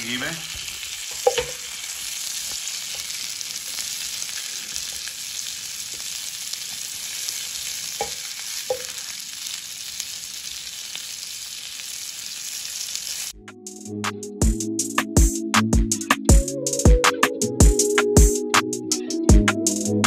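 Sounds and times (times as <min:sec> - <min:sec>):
kebabs sizzling in a frying pan: 0:00.0 - 0:13.3
spatula knocking on a pan: 0:01.2 - 0:01.6, 0:08.0 - 0:08.9.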